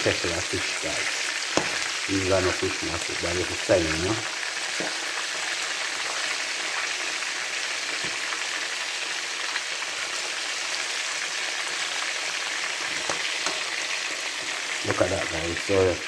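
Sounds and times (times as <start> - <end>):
chicken deep-frying in hot oil: 0.0 - 16.0.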